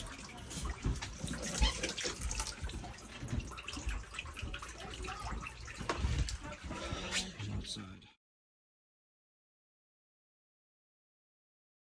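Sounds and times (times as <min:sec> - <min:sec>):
water dripping: 0:00.0 - 0:07.0
water trickling and splashing: 0:00.0 - 0:07.9.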